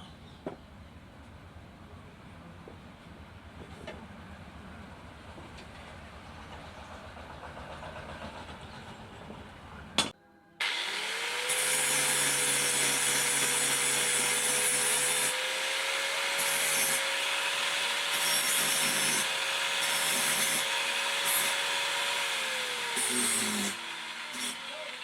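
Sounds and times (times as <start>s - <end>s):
angle grinder grinding steel: 10.6s - 25.0s.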